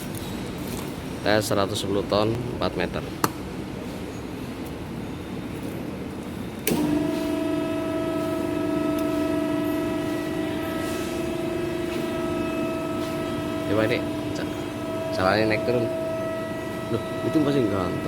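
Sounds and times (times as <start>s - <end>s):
press brake motor humming: 6.1s - 18.0s.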